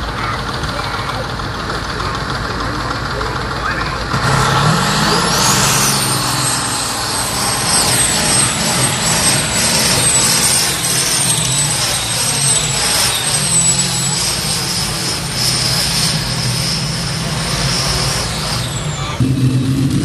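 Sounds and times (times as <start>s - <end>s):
tractor engine under load: 0.0s - 20.0s
high whistle: 4.4s - 19.6s.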